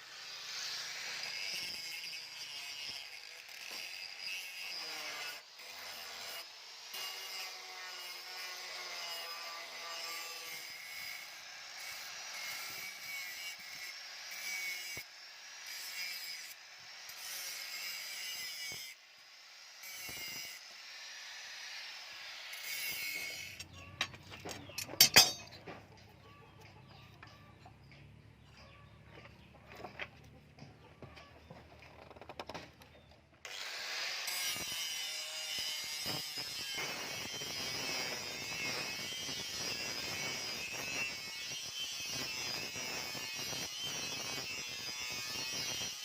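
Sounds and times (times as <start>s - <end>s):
hand tool rasping on metal: 22.6s - 25.6s
metal clanks: 23.6s - 26.0s.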